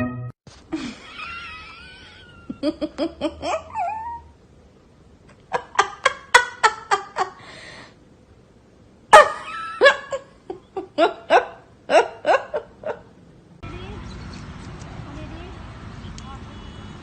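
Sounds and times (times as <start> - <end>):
rhythmic laughter: 9.1 - 13.1.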